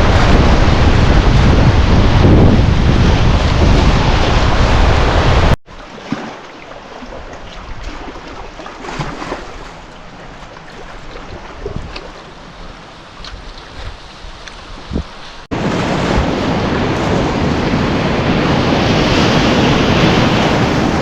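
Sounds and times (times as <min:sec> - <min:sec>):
wind buffeting microphone: 0:00.0 - 0:05.6, 0:10.3 - 0:21.0
faint water splashes: 0:05.6 - 0:14.5.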